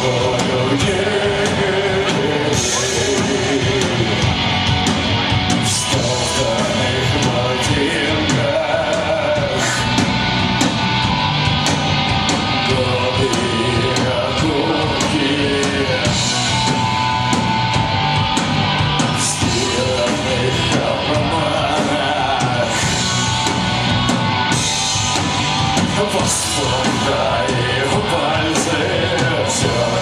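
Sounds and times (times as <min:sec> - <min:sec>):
person singing: 0:00.0 - 0:04.6, 0:05.6 - 0:10.1, 0:12.5 - 0:16.9, 0:19.1 - 0:23.4, 0:25.8 - 0:30.0
punk rock band playing: 0:00.0 - 0:30.0.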